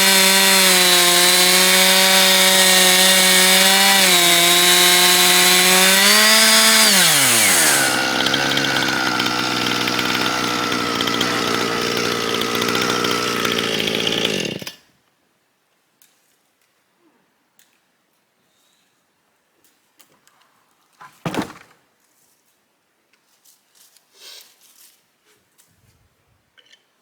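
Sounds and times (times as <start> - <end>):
chainsaw running: 0.0 - 14.8.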